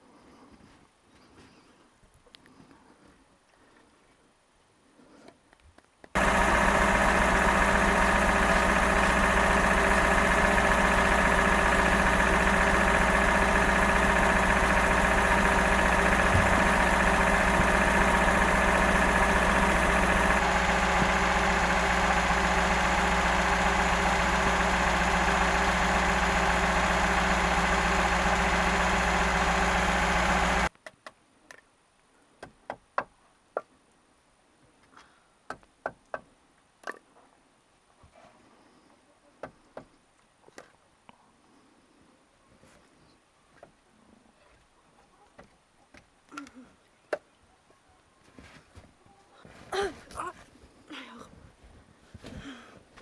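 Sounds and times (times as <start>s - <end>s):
motor running steadily: 6.2s - 30.7s.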